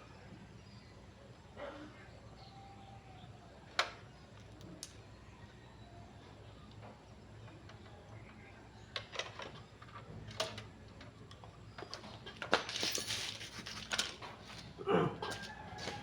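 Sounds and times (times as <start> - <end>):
rustling or scraping: 12.6 - 16.0.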